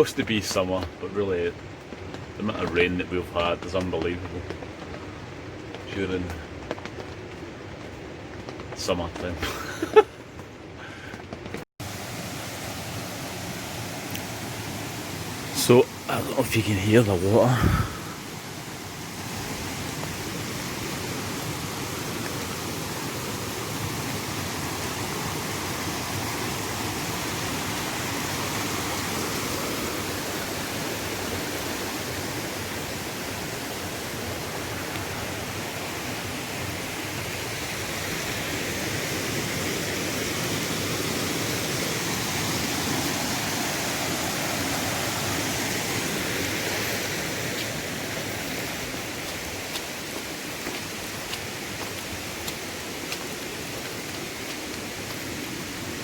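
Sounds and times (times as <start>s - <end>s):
stream rushing: 11.8s - 56.0s.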